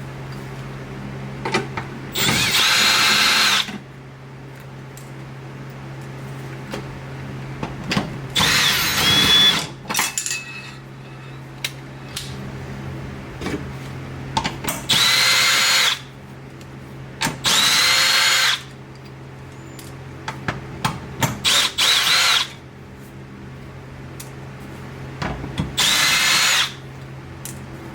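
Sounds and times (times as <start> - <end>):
steady low hum: 0.0 - 15.4
power drill motor whining: 2.1 - 3.7, 8.4 - 9.7, 14.9 - 16.0, 17.4 - 18.7, 21.4 - 22.6, 25.8 - 26.8.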